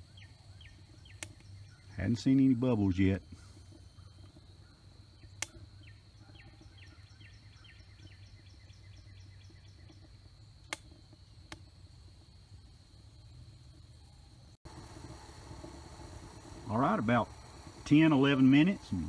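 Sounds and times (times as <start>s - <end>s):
bird chirping: 0.0s - 10.6s
sharp pops: 9.9s - 11.7s
low hum: 11.4s - 19.0s.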